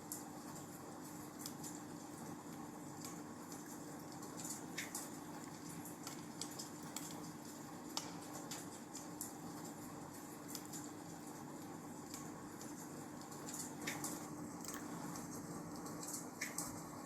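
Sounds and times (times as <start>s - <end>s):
wood fire crackling: 0.1s - 17.0s
fire pops and snaps: 3.0s - 9.8s.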